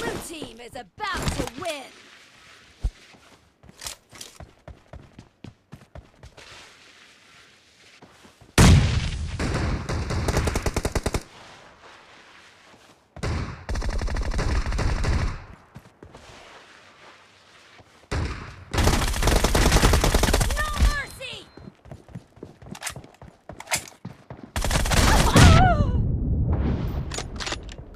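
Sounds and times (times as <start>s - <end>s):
video game automatic gunfire: 18.7s - 20.8s.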